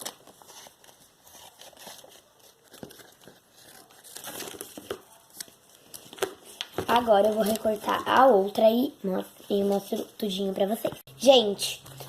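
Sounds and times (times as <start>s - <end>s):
paper rustling and crinkling: 0.0s - 8.5s.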